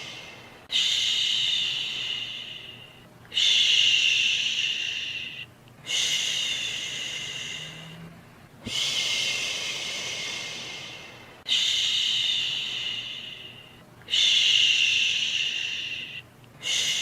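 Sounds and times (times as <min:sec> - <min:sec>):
person shushing: 0:00.0 - 0:17.0.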